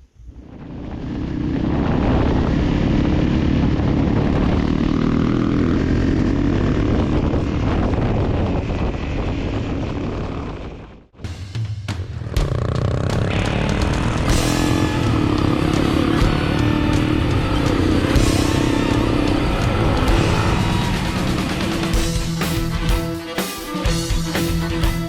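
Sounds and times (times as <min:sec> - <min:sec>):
wind noise: 0:00.0 - 0:11.2
motorcycle engine at speed: 0:00.2 - 0:11.2, 0:12.1 - 0:23.1.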